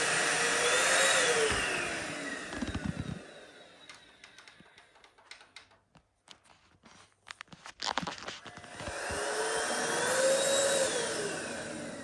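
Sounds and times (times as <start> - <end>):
vacuum cleaner motor winding down: 0.0 - 5.5, 8.4 - 12.0
faint clicks and taps: 3.9 - 9.0.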